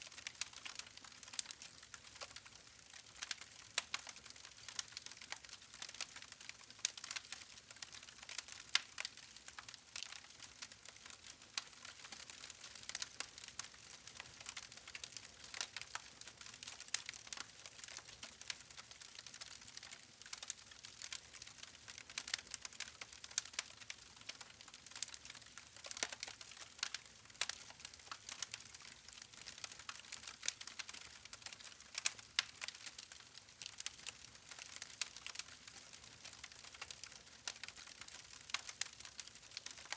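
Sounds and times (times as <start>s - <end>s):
wood fire crackling: 0.1s - 39.9s.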